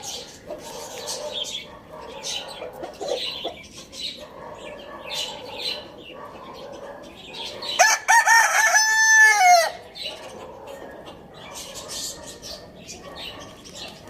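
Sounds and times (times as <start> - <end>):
birds chirping and clucking: 0.0 - 14.0
rooster crowing: 7.8 - 9.9.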